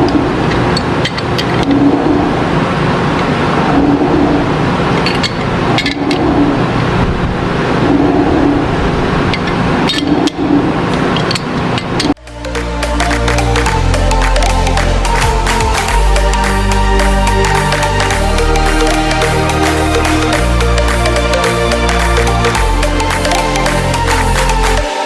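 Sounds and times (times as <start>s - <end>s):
lathe running: 12.2s - 25.0s.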